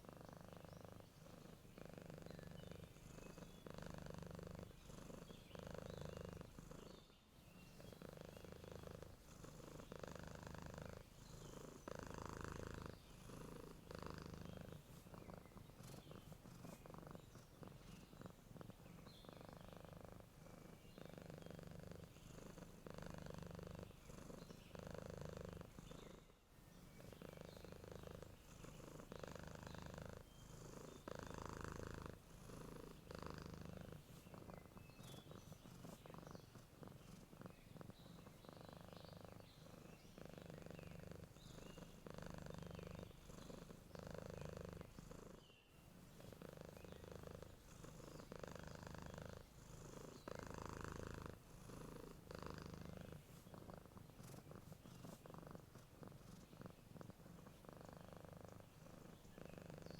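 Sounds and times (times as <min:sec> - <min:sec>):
cat purring: 0:00.0 - 0:59.9.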